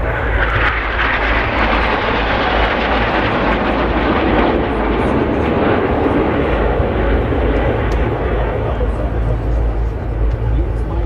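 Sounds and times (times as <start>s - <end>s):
jet fighters flying: 0.0s - 11.0s.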